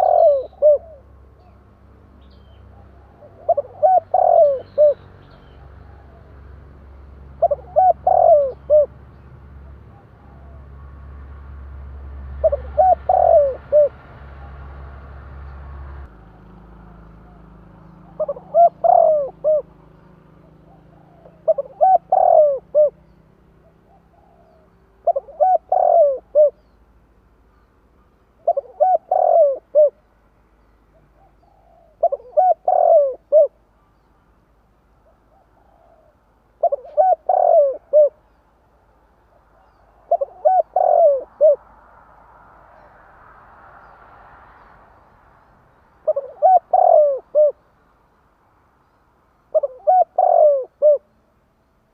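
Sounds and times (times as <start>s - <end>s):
dove cooing: 0.0s - 1.7s, 2.4s - 6.4s, 7.2s - 10.9s, 12.4s - 14.9s, 16.2s - 26.8s, 28.4s - 30.1s, 30.9s - 34.1s, 35.0s - 38.4s, 39.3s - 41.7s, 46.0s - 47.6s, 49.5s - 51.2s.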